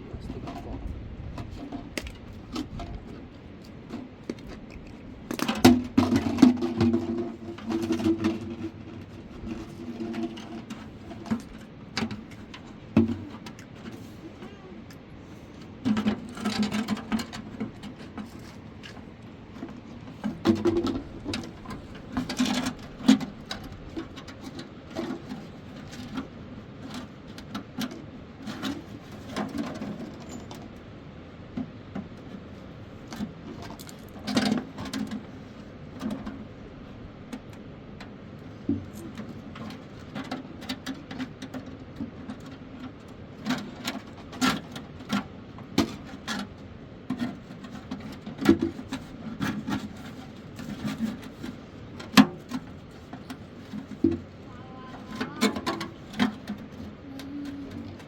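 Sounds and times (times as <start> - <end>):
steady background noise: 0.0 - 58.0.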